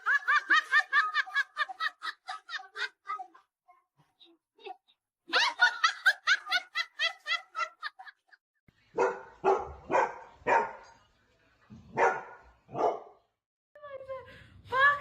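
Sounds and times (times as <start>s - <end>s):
dog barking: 8.9s - 11.0s, 11.9s - 13.3s.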